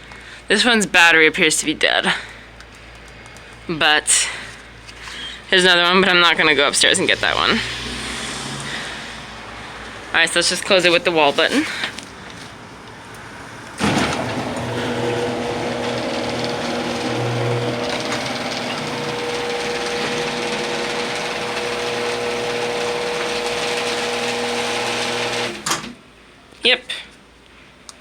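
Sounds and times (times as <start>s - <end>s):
garage door opener motor humming: 13.7s - 26.0s.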